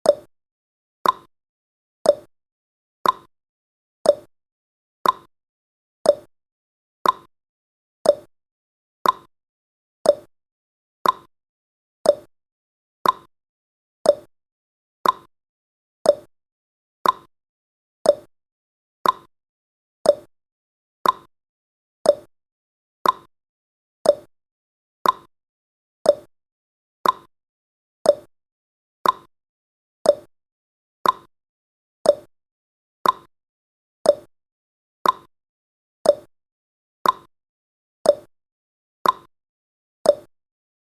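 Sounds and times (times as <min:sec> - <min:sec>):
timer ticking: 0:00.0 - 0:00.3, 0:01.0 - 0:01.3, 0:02.0 - 0:02.3, 0:03.0 - 0:03.3, 0:04.0 - 0:04.3, 0:05.0 - 0:05.3, 0:06.0 - 0:06.3, 0:07.0 - 0:07.3, 0:08.0 - 0:08.3, 0:09.0 - 0:09.3, 0:10.0 - 0:10.3, 0:11.0 - 0:11.3, 0:12.0 - 0:12.3, 0:13.0 - 0:13.3, 0:14.0 - 0:14.3, 0:15.0 - 0:15.3, 0:16.0 - 0:16.3, 0:17.0 - 0:17.3, 0:18.0 - 0:18.3, 0:19.0 - 0:19.3, 0:20.0 - 0:20.3, 0:21.0 - 0:21.3, 0:22.0 - 0:22.3, 0:23.0 - 0:23.3, 0:24.0 - 0:24.3, 0:25.0 - 0:25.3, 0:26.0 - 0:26.3, 0:27.0 - 0:27.3, 0:28.0 - 0:28.3, 0:29.0 - 0:29.3, 0:30.0 - 0:30.3, 0:31.0 - 0:31.3, 0:32.0 - 0:32.3, 0:33.0 - 0:33.3, 0:34.0 - 0:34.3, 0:35.0 - 0:35.3, 0:36.0 - 0:36.3, 0:37.0 - 0:37.3, 0:38.0 - 0:38.3, 0:39.0 - 0:39.3, 0:40.1 - 0:40.3.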